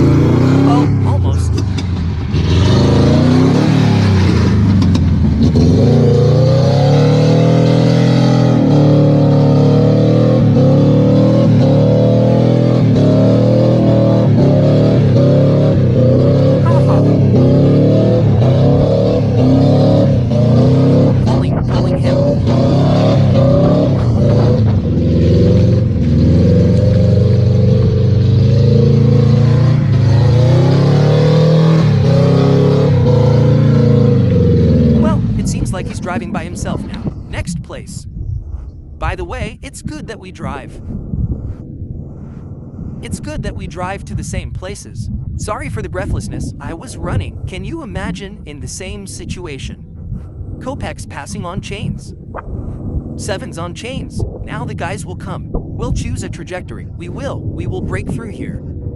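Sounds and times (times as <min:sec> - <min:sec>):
car engine revving hard: 0:00.0 - 0:37.6.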